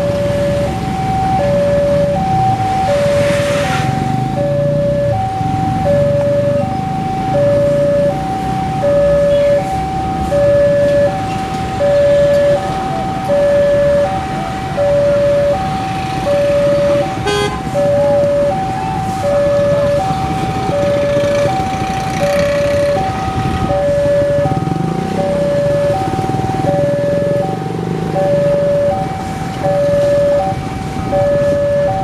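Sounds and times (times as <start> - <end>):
level crossing warning alarm: 0.0 - 32.0
road traffic rumble: 0.0 - 32.0
car horn beep: 17.2 - 17.7.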